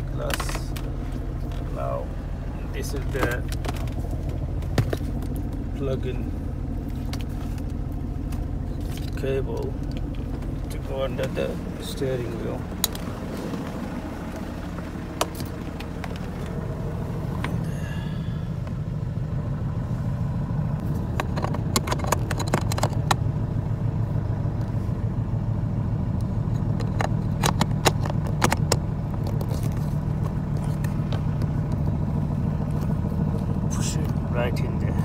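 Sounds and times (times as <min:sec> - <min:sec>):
car engine idling: 0:00.0 - 0:35.0
plug clicks and rattles: 0:12.8 - 0:13.6, 0:20.8 - 0:23.2, 0:26.2 - 0:32.0.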